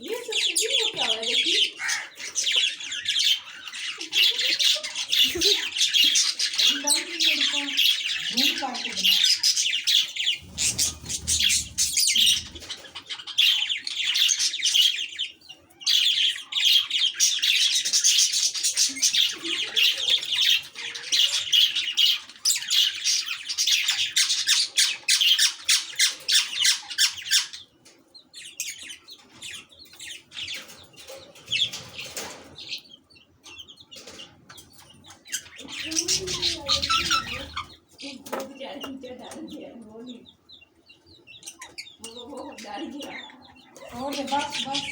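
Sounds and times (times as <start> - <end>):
lovebirds squawking: 0.0 - 44.9.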